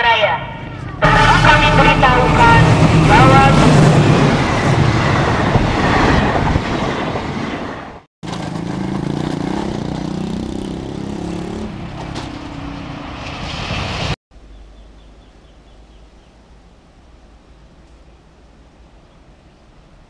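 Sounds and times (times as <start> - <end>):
locomotive engine drone: 0.0 - 5.7, 8.2 - 20.0
train rail noise: 0.6 - 10.4, 11.8 - 14.2.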